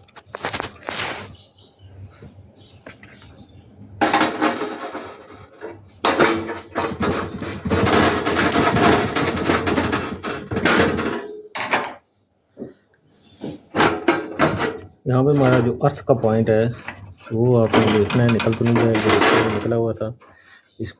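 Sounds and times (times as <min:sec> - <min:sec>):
metal parts clattering and scraping: 0:04.0 - 0:12.0, 0:13.7 - 0:19.8.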